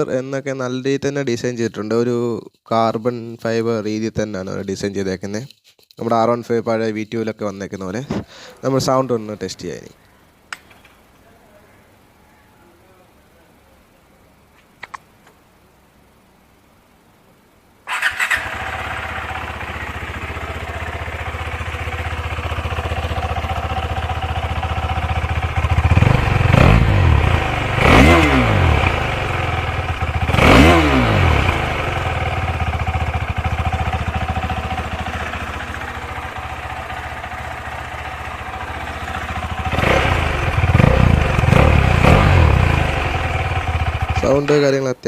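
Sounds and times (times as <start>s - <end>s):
motorcycle engine idling and revving: 17.9s - 44.6s.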